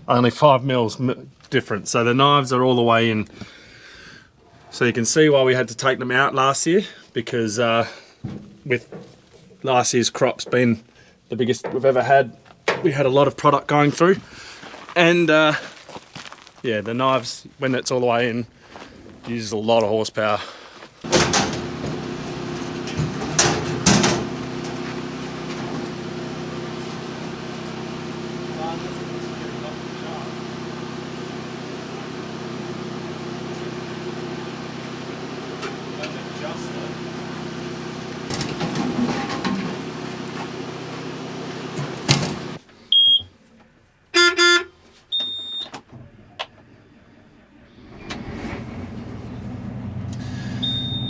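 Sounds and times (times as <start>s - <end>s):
farm machinery running: 21.0s - 42.6s, 47.8s - 51.0s
engine humming: 21.0s - 42.7s, 46.1s - 51.0s
vehicle horn double honk: 44.2s - 44.8s
short high beep: 44.2s - 45.7s, 50.6s - 51.0s.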